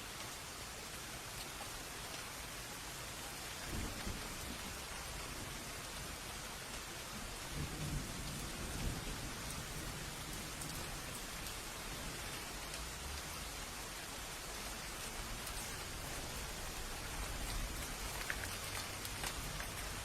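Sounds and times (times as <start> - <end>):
rain hissing: 0.0 - 20.0
low thunder rumbling: 3.7 - 6.3, 7.1 - 13.2, 14.6 - 20.0.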